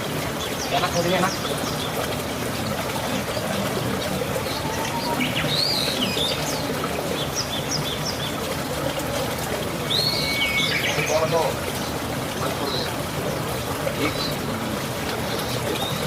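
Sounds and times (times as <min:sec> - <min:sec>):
small birds chirping: 0:03.1 - 0:08.5, 0:09.8 - 0:13.0
whistled bird calls: 0:04.4 - 0:06.7, 0:09.9 - 0:11.3.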